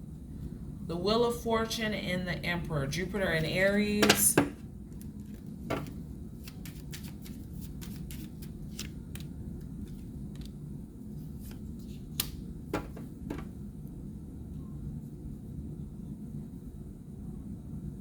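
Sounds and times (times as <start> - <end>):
cards shuffling: 4.9 - 10.6.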